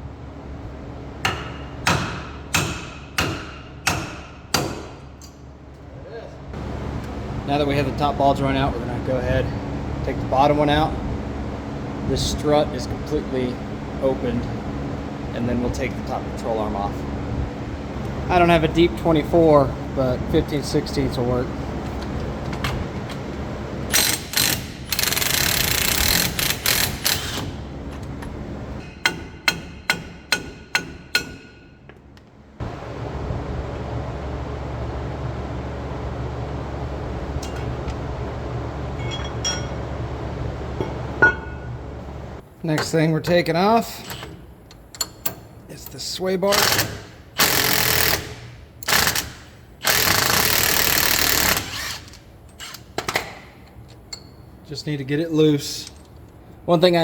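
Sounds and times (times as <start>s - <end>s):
impact wrench zipping: 23.9s - 27.7s, 46.5s - 53.6s.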